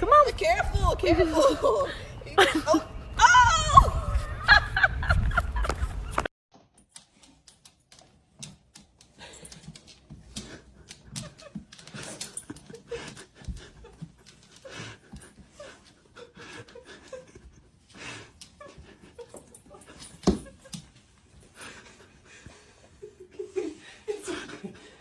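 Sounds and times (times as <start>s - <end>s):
dog panting: 8.8s - 20.2s.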